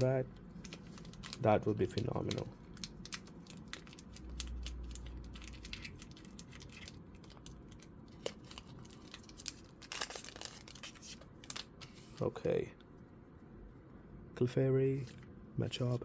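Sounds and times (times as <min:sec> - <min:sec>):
foil wrapper crinkling and tearing: 0:00.0 - 0:12.3.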